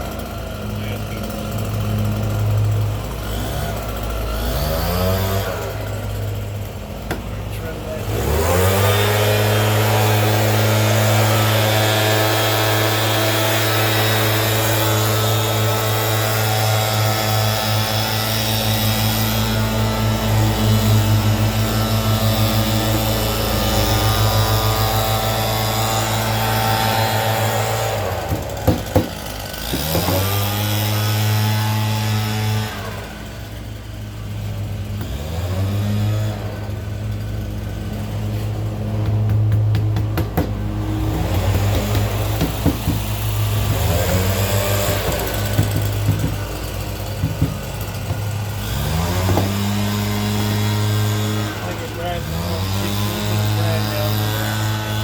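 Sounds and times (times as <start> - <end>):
electric motor running steadily: 0.0 - 55.0.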